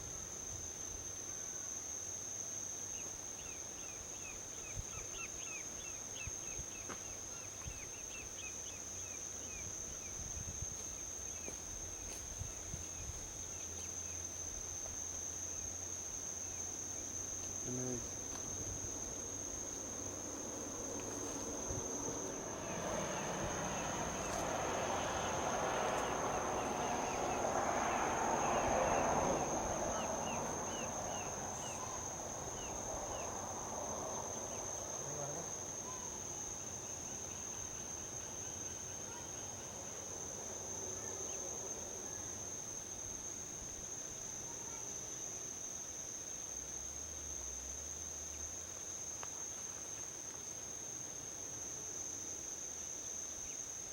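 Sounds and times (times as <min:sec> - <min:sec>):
crickets trilling: 0:00.0 - 0:53.9
vehicle passing on highway: 0:18.2 - 0:35.8.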